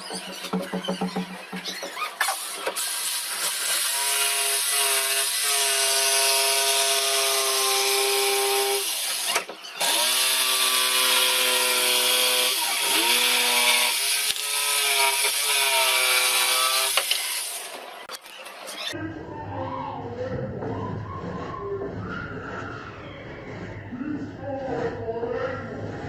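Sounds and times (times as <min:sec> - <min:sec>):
power tool motor whining: 0:02.2 - 0:17.8.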